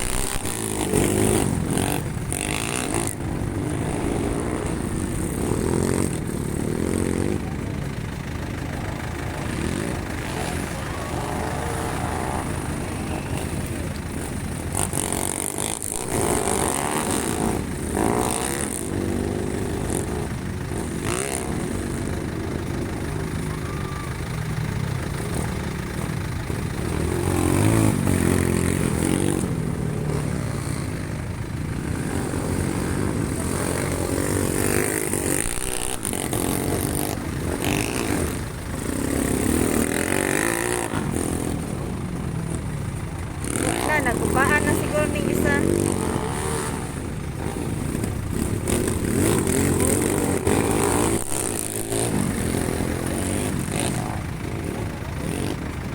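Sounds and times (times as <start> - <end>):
motorcycle engines revving and passing: 0.0 - 55.9.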